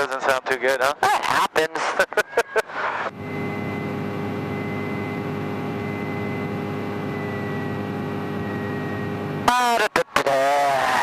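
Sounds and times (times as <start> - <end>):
light aircraft engine droning: 3.1 - 9.5.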